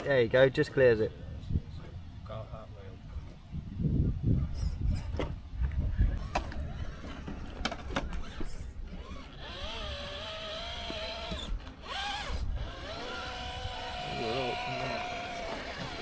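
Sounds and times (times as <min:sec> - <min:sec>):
electric motor whining: 0:07.9 - 0:16.0.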